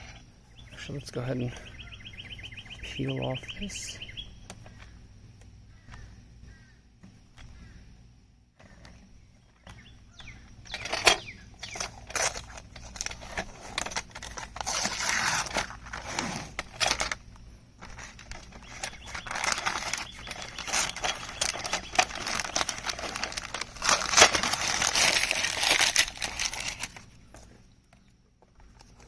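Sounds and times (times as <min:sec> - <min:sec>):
plastic film peeling and crinkling: 0:10.9 - 0:17.2, 0:17.8 - 0:27.3.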